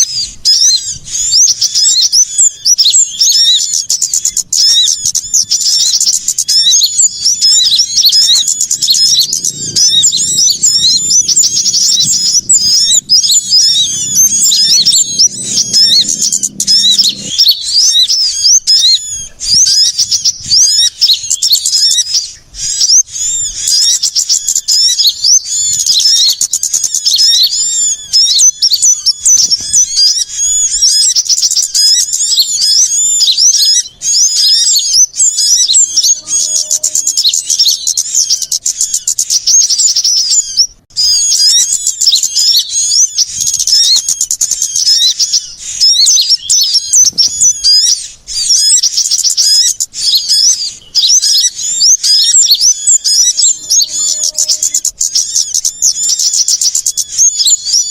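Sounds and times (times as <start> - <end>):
small birds chirping: 0.0 - 57.9
faint low hum: 3.5 - 22.6.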